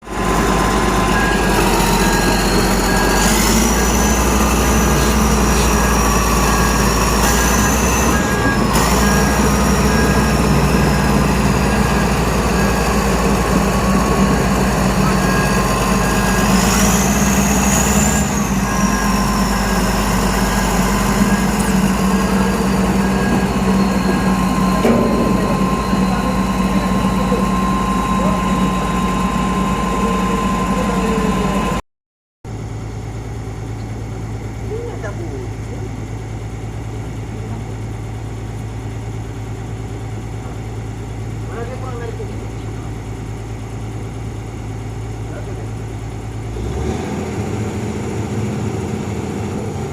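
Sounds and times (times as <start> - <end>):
heavy diesel machinery running: 0.0 - 31.8, 32.5 - 49.9
high whine: 0.0 - 31.8
short beep: 0.2 - 31.8.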